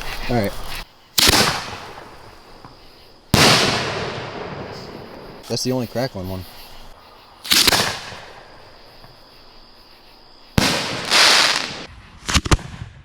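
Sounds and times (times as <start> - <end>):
fireworks bangs: 1.2 - 5.8, 7.4 - 9.2, 10.5 - 13.0.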